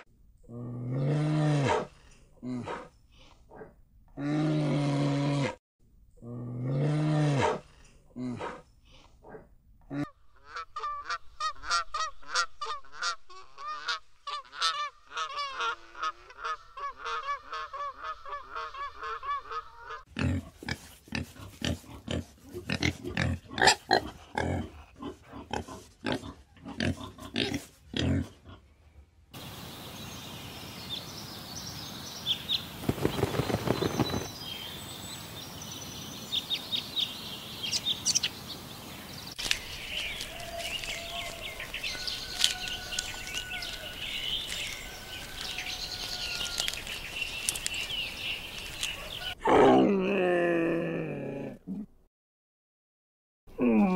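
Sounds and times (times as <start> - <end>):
pigs grunting: 20.1 - 28.7.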